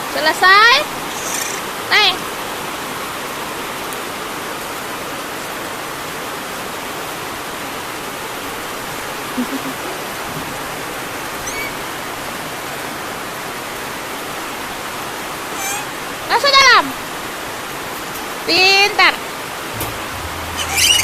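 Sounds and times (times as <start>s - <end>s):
falling water hissing: 0.6s - 1.9s
faint high chirp: 11.4s - 11.9s, 15.5s - 16.0s, 19.8s - 21.0s.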